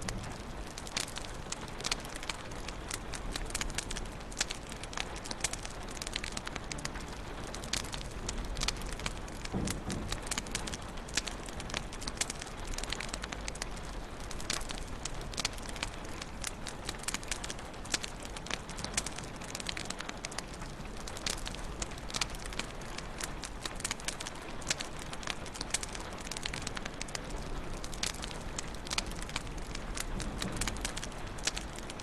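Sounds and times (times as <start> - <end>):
wood fire crackling: 0.0 - 32.0
low thump: 9.4 - 10.8.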